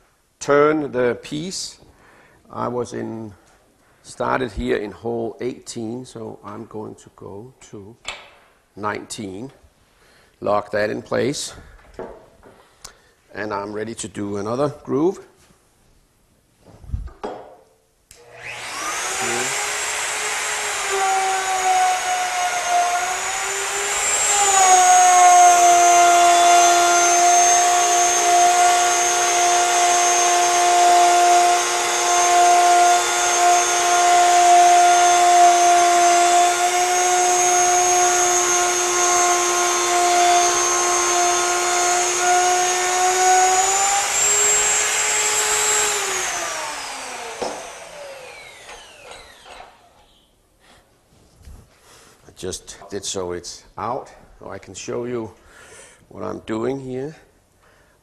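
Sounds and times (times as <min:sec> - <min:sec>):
router whining cutting wood: 0:18.2 - 0:50.2.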